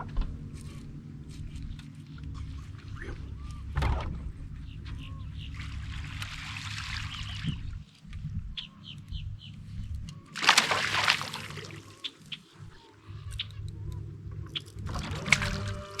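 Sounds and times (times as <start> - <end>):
low steady hum: 0.0 - 16.0
bird chirps: 0.4 - 10.4, 11.4 - 15.0
loud water splash: 10.4 - 11.8, 14.9 - 16.0.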